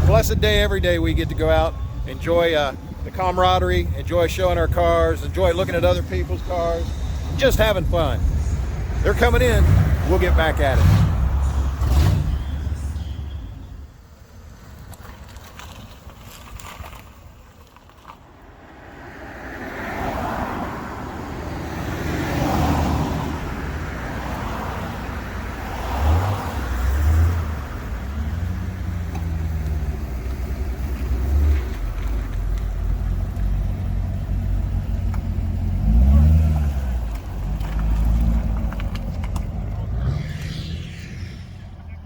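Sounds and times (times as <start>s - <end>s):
cars driving past: 0.0s - 17.0s, 17.9s - 42.0s
deep engine rumble: 29.4s - 42.0s.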